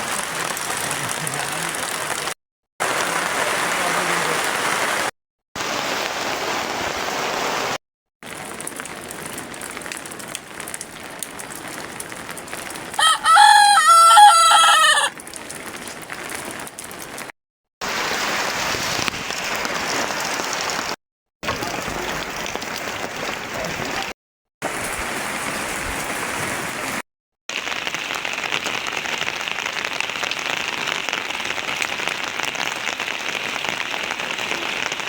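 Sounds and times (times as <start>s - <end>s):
heavy rain hissing: 0.0s - 7.8s, 17.8s - 35.0s
rooster crowing: 13.0s - 15.1s.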